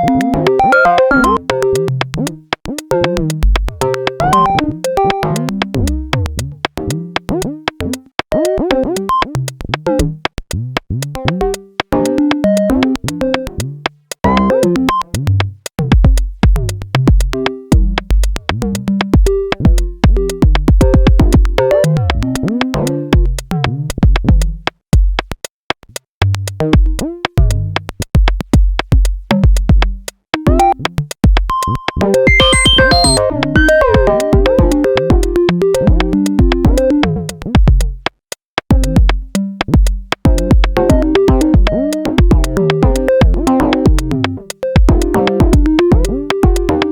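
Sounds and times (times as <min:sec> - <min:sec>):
drum machine percussion: 0:00.0 - 0:46.9
pulsing bass: 0:01.2 - 0:07.8, 0:09.4 - 0:24.6, 0:26.2 - 0:28.6, 0:31.6 - 0:38.0, 0:38.7 - 0:46.9
sequenced synth notes: 0:31.5 - 0:37.1.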